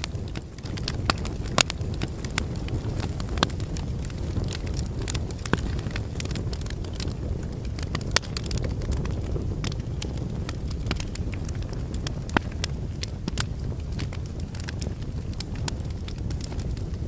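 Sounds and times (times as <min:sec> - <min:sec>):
fire rumbling: 0:00.0 - 0:17.0
logs crackling and popping: 0:00.0 - 0:17.0.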